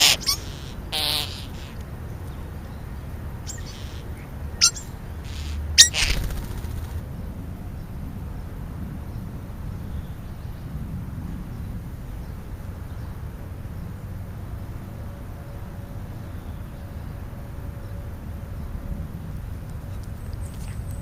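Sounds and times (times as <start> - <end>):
short sharp bird calls: 0.0 - 1.8, 3.5 - 6.9.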